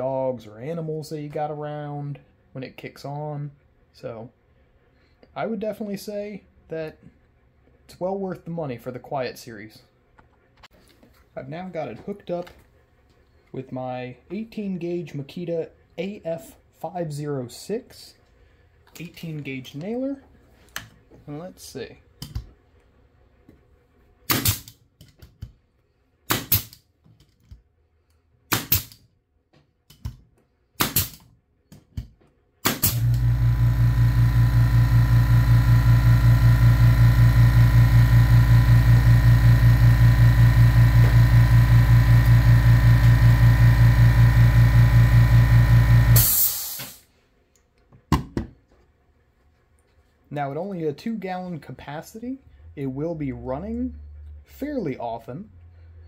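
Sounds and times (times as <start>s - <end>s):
pneumatic nailer firing: 24.3s - 24.8s, 26.3s - 26.8s, 28.5s - 29.0s, 30.8s - 31.3s, 32.6s - 47.0s
air compressor running: 32.6s - 47.1s.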